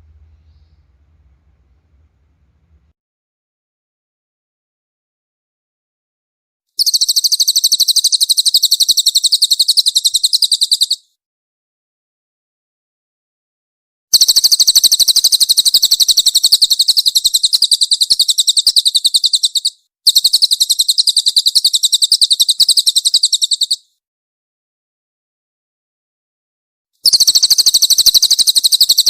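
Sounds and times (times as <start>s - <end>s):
bird chirping rapid song: 0.0s - 1.8s, 6.8s - 11.0s, 14.2s - 23.8s, 27.0s - 29.0s.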